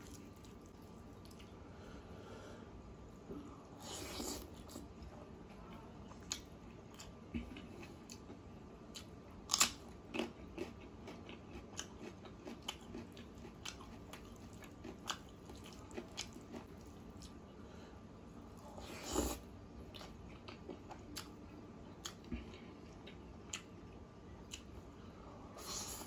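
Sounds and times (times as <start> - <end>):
person chewing food: 0.0 - 1.6, 6.0 - 17.5, 18.6 - 24.8.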